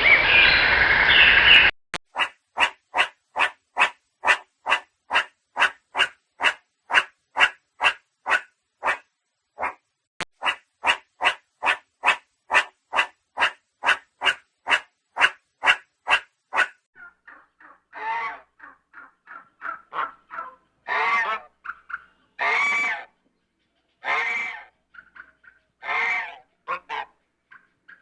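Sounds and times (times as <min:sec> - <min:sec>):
dog barking: 0:02.2 - 0:09.8, 0:10.4 - 0:16.8, 0:19.9 - 0:21.4
geese honking: 0:14.7 - 0:23.1, 0:24.0 - 0:28.0.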